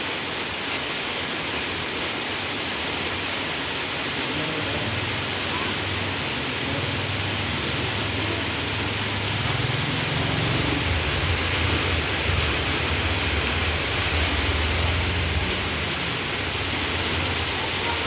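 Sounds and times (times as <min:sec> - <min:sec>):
rain hiss: 0:00.0 - 0:18.0
low vehicle rumble: 0:07.1 - 0:17.7.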